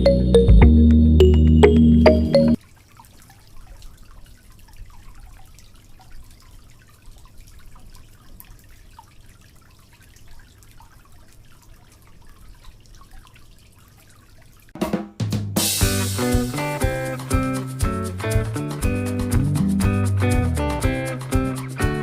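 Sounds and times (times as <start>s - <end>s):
water dripping and trickling: 1.6s - 14.8s.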